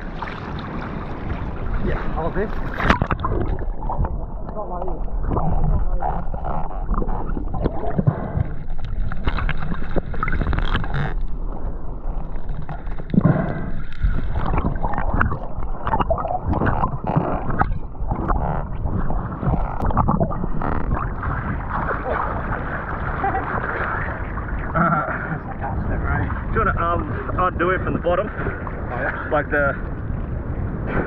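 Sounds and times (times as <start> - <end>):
water sloshing and gurgling: 0.0 - 31.0
small knocks and crackles: 5.3 - 11.4.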